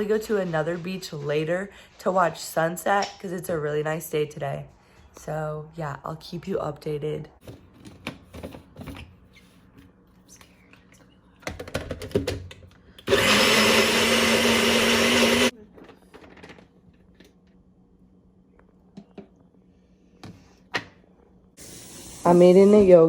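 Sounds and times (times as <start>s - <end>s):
electric blender whirring: 13.0s - 15.5s.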